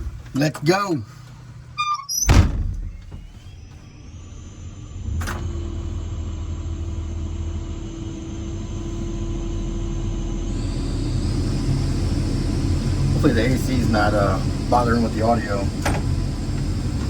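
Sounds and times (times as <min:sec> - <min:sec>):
sharp thud: 0:02.3 - 0:03.3
excavator diesel engine running: 0:04.6 - 0:17.0.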